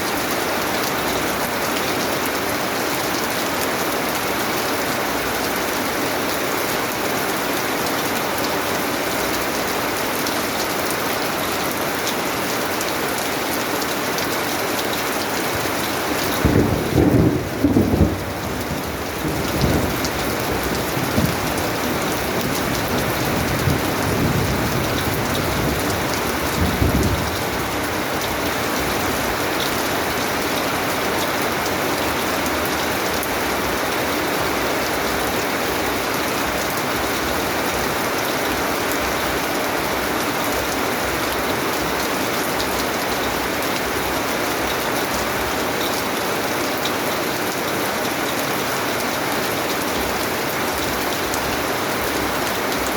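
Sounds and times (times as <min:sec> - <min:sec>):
steady rain falling: 0:00.0 - 0:52.9
thunder rumbling: 0:16.4 - 0:29.4.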